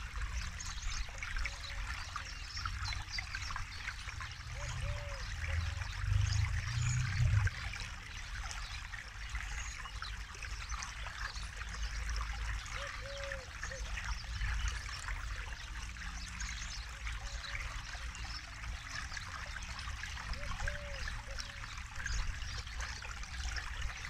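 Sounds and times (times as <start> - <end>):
river water flowing: 0.0 - 24.0
deep low rumble: 5.5 - 7.8.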